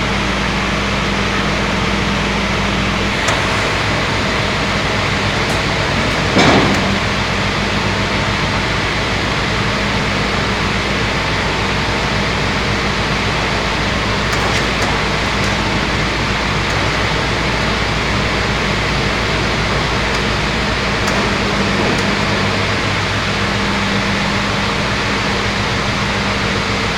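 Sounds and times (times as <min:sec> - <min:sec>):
circular saw machine running: 0:00.0 - 0:26.9.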